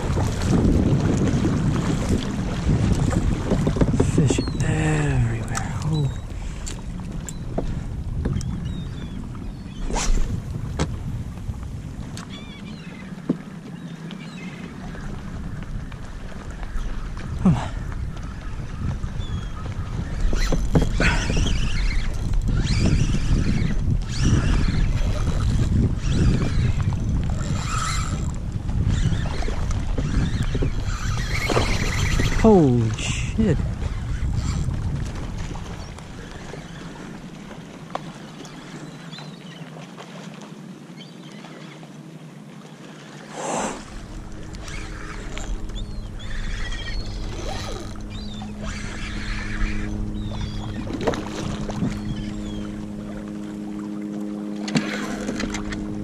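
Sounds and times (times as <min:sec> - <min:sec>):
water splashing: 0:00.0 - 0:07.8, 0:41.4 - 0:56.0
wind rumbling on microphone: 0:00.0 - 0:39.3, 0:43.3 - 0:56.0
water sloshing around a kayak: 0:00.0 - 0:56.0
steady low tones: 0:43.6 - 0:56.0.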